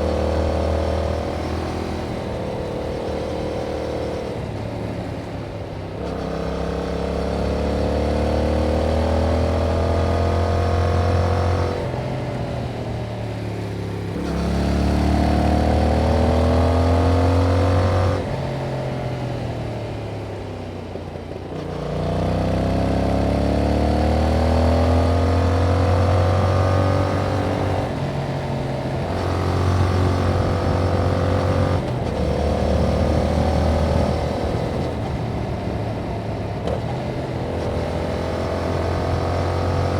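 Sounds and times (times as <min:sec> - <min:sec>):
motorcycle engine revving: 0:14.1 - 0:18.4, 0:21.6 - 0:39.9.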